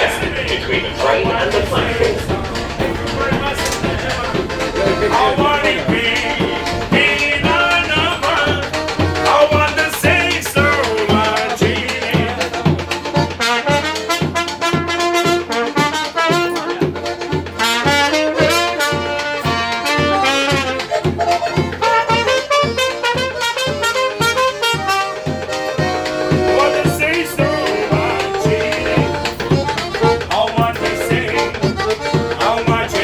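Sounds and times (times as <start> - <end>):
steady low beat: 0.0 - 13.5, 25.6 - 33.0
trumpet playing jazzy melody: 0.0 - 33.0.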